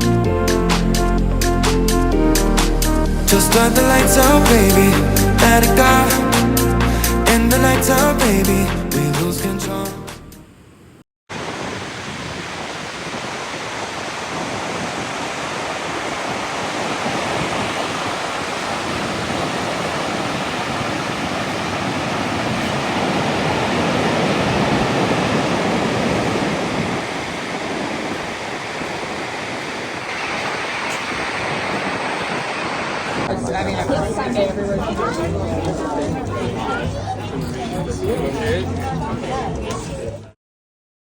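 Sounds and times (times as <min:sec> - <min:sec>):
rushing water: 0:11.3 - 0:33.4.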